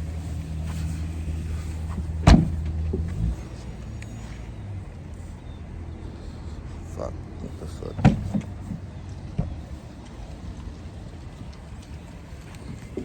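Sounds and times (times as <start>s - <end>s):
low mechanical hum: 0.0s - 13.0s
loud thump: 1.9s - 3.1s.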